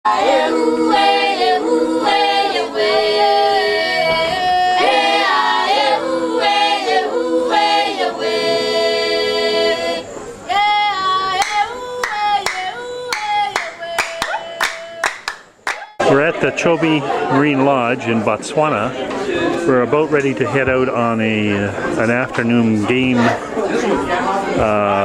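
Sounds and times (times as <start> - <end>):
group singing in harmony: 0.0 - 17.5
hand claps: 11.4 - 16.0.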